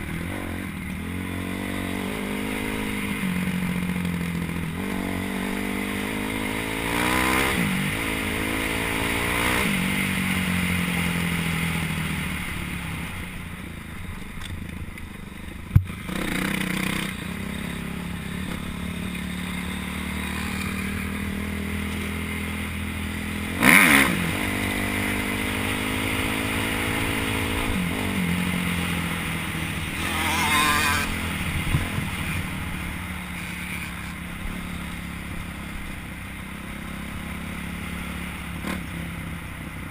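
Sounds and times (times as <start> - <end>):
dirt bike engine revving: 0.0 - 11.8, 15.9 - 35.8.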